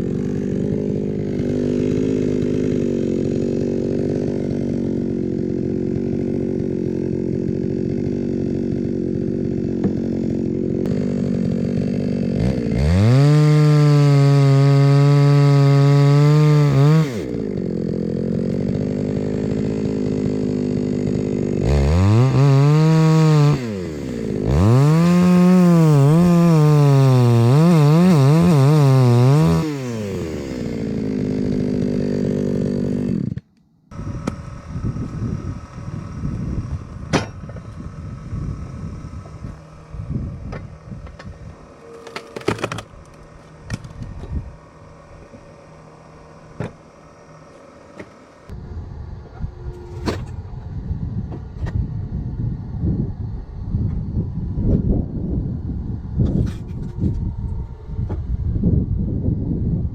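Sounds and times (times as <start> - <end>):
chainsaw idling and revving: 0.0 - 49.2.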